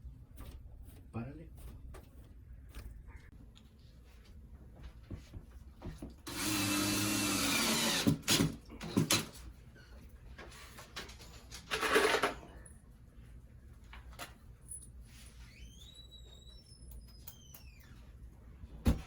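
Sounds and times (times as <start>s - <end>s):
handheld power tool running: 6.3s - 9.2s.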